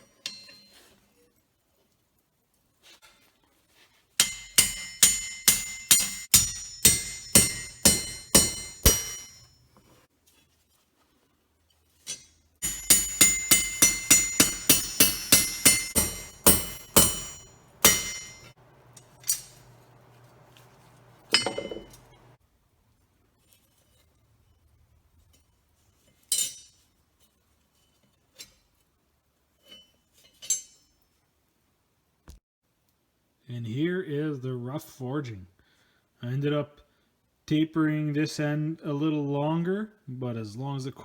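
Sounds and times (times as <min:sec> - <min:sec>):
hammer ringing on anvil: 0:04.2 - 0:09.6, 0:12.6 - 0:19.8, 0:21.3 - 0:22.4.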